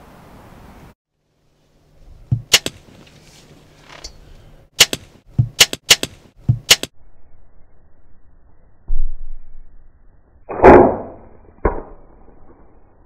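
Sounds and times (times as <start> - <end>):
turkey striking decoy slaps: 2.4 - 2.8.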